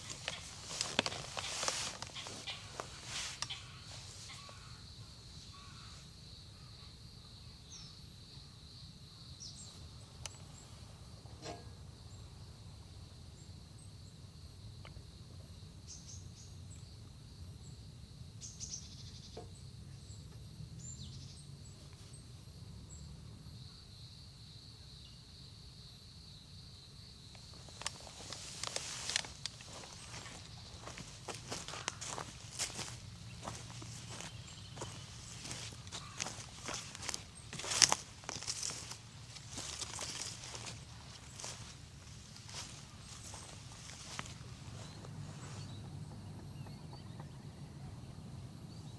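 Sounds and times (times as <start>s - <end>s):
insect trill: 0.0s - 48.9s.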